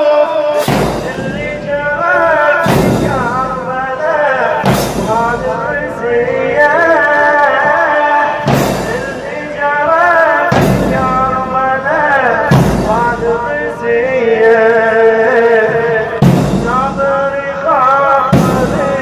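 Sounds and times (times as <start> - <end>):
man chanting: 0.0 - 19.0.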